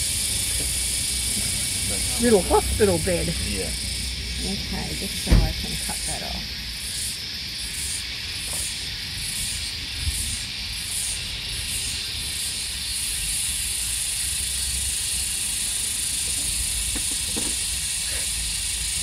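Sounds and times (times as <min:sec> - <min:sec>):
cicadas buzzing: 0:00.0 - 0:19.0.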